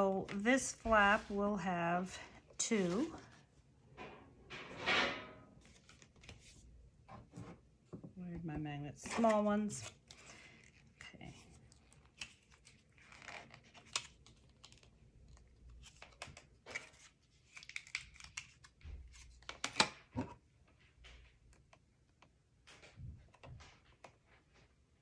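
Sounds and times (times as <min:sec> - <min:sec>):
paper crinkling: 0:05.6 - 0:06.7, 0:09.2 - 0:19.6.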